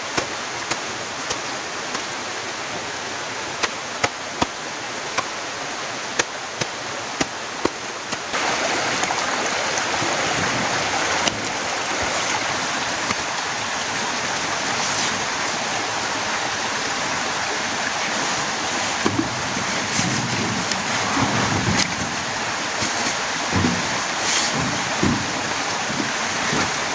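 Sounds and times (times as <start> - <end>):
heavy rain falling: 6.8 - 26.9
drops knocking on surface: 22.9 - 26.8.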